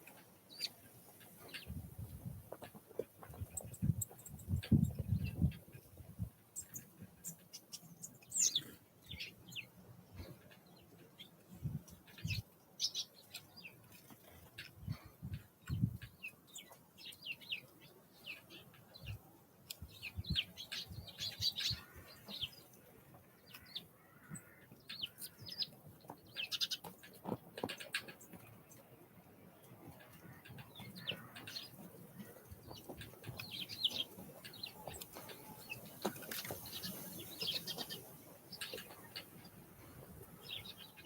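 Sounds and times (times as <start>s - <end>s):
songbirds chirping: 0.0s - 41.0s.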